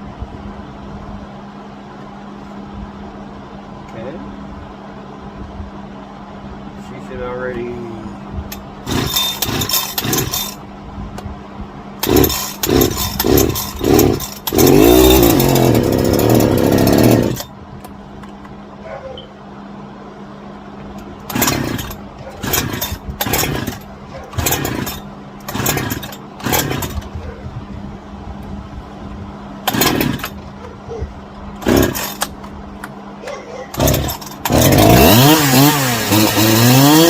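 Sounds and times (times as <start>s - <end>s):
chainsaw pull-cord tugs: 8.5s - 10.6s, 12.0s - 17.5s, 21.2s - 27.4s, 29.6s - 30.7s, 31.6s - 32.4s, 33.3s - 37.0s
chainsaw engine running: 8.8s - 10.6s, 12.0s - 17.5s, 21.1s - 27.4s, 29.6s - 30.6s, 31.6s - 32.5s, 33.7s - 37.0s.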